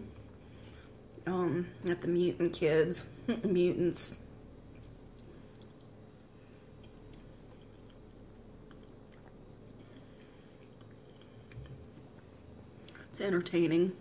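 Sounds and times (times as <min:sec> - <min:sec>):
low steady hum: 0:00.0 - 0:14.0
person chewing food: 0:04.7 - 0:13.1.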